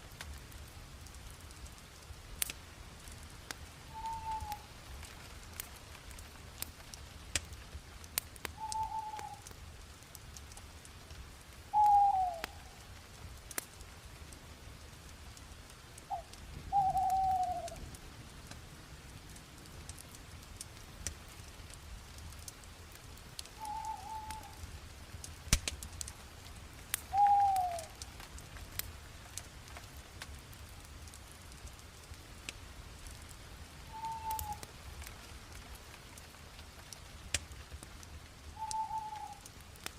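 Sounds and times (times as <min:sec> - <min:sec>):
bonfire crackling and popping: 0:00.0 - 0:39.9.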